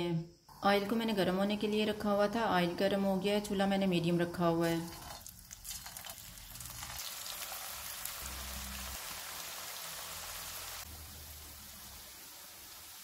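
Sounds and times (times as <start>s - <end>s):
oil sizzling while deep-frying: 4.7s - 13.0s.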